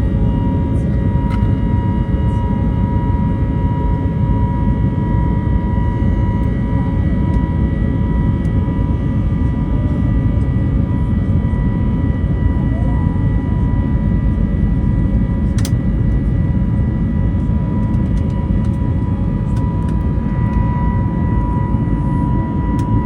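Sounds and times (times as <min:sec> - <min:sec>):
turbofan engine and airflow rumble: 0:00.0 - 0:23.0
steady whining tones: 0:17.4 - 0:23.0.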